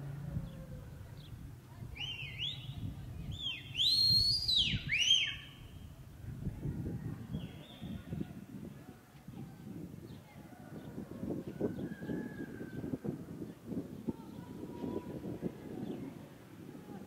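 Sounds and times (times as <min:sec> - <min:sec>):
bird whistling: 0:02.0 - 0:05.6.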